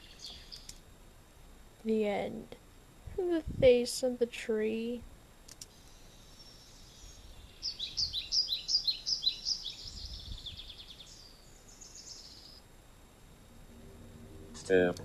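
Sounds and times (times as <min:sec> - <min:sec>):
songbird chirping: 0:00.0 - 0:00.9, 0:05.5 - 0:15.0
bird trilling: 0:05.8 - 0:12.6.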